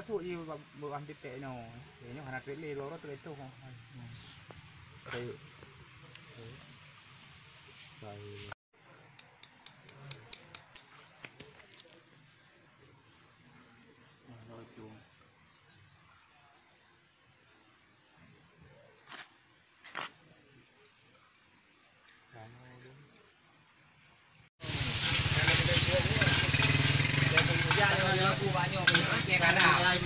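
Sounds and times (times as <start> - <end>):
crickets trilling: 0.0 - 30.0
sharp clicks: 9.1 - 11.4.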